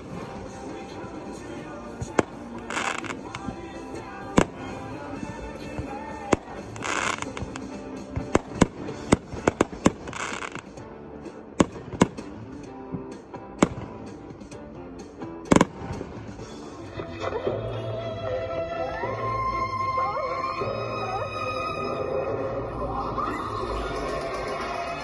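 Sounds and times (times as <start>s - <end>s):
fireworks hissing rushes: 0.0s - 5.1s, 5.8s - 10.7s
fireworks bangs: 0.0s - 10.8s, 11.6s - 14.2s, 15.5s - 16.4s
fireworks cracks: 0.0s - 10.8s, 11.5s - 14.2s, 15.4s - 16.6s
background music: 0.0s - 25.0s.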